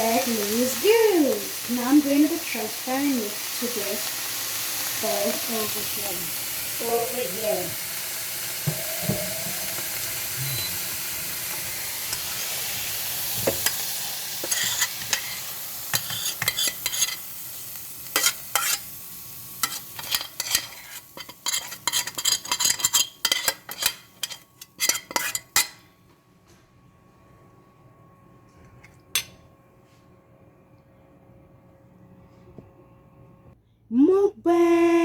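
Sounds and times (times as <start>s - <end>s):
food sizzling in a pan: 0.0s - 25.8s
utensil scraping a pan: 14.4s - 17.3s, 18.1s - 18.9s, 19.6s - 25.8s.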